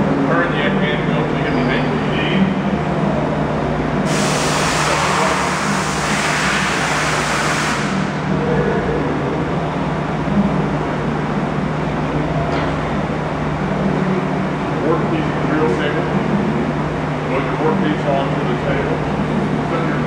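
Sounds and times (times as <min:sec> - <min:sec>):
low machine hum: 0:00.0 - 0:20.0
loud rushing hiss: 0:04.0 - 0:08.3.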